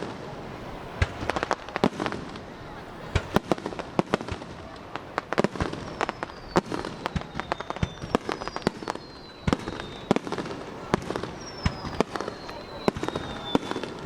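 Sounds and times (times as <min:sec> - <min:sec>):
fireworks bangs and cracks: 0:00.0 - 0:14.0
firework whistles sliding down: 0:05.6 - 0:14.0.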